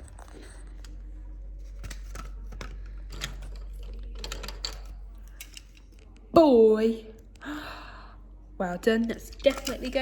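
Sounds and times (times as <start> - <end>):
low electrical hum: 0.0 - 10.0
small objects clicking and rustling: 1.6 - 6.3, 9.2 - 10.0.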